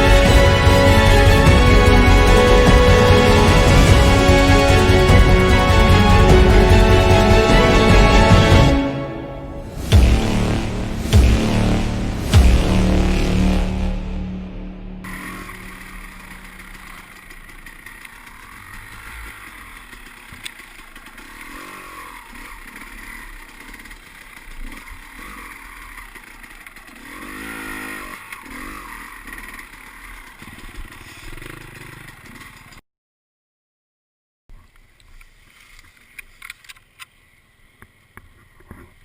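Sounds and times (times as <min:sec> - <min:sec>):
dirt bike engine revving: 0:09.2 - 0:32.8
clatter: 0:15.1 - 0:32.8.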